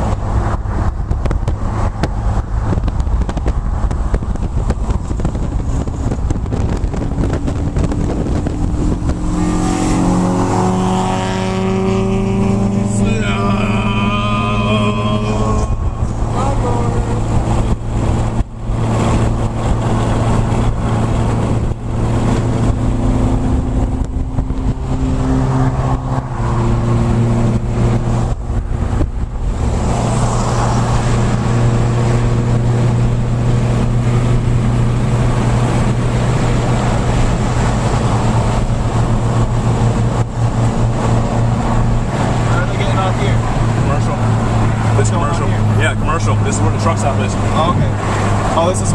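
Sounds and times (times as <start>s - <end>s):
car engine drone: 0.0s - 48.9s
road noise: 0.0s - 48.9s.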